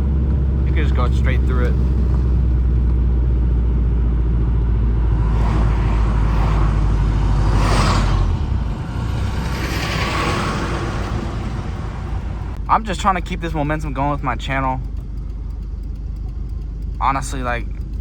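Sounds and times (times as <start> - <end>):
car exhaust drone: 0.0 - 18.0.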